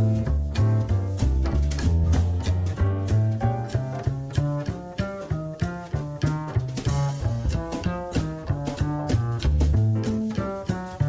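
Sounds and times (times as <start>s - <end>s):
walking upright bass: 0.0s - 11.0s
drum cymbals: 5.6s - 11.0s.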